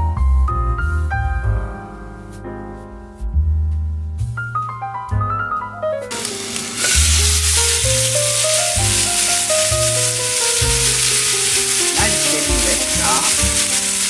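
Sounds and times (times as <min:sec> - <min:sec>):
piano music: 0:00.0 - 0:14.0
patties sizzling in a frying pan: 0:06.1 - 0:14.0.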